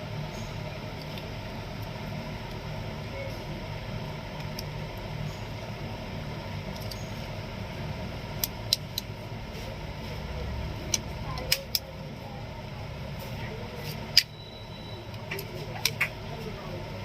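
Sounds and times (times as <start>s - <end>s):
steady low hum: 0.0s - 17.0s
plastic clips snapping: 8.4s - 9.1s, 10.9s - 11.9s.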